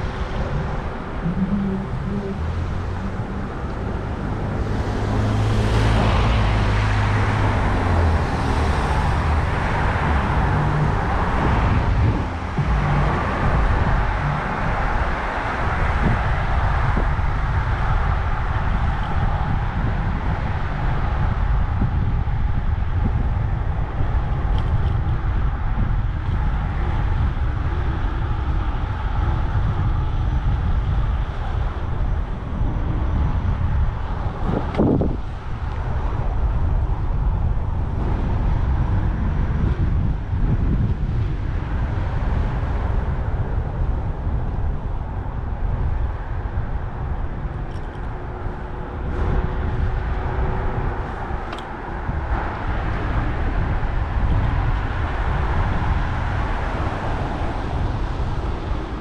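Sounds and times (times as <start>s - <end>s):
vehicle passing close by: 0.0s - 22.3s, 46.8s - 59.0s
city traffic noise: 0.0s - 59.0s
wind rumble on microphone: 0.0s - 59.0s.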